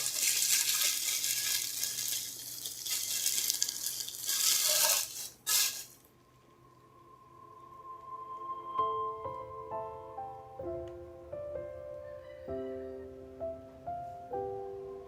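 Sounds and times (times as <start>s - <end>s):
packaging crinkling and rustling: 0.0s - 6.1s
soft music: 6.2s - 15.0s.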